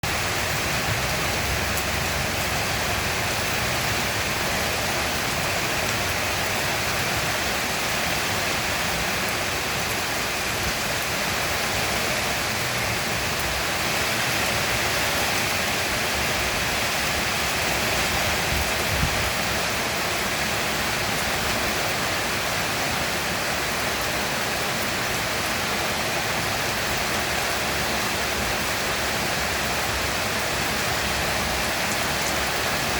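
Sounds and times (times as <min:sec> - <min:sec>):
heavy rain falling: 0:00.0 - 0:32.9.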